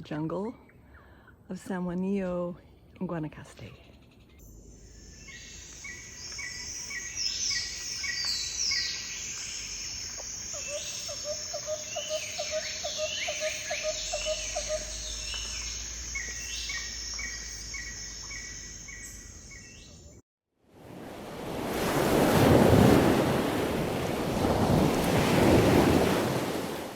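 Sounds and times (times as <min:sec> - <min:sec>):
chorus of birds calling: 0:05.2 - 0:20.1
surf breaking: 0:20.9 - 0:26.9.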